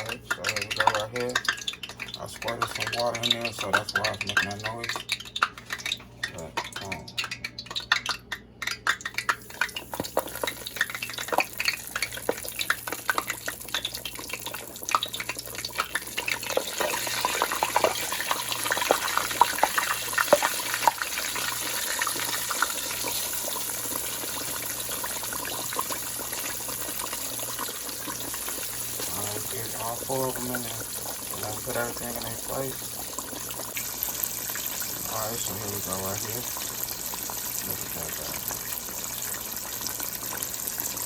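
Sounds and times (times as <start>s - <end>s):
oil crackling and sizzling: 0.0s - 41.0s.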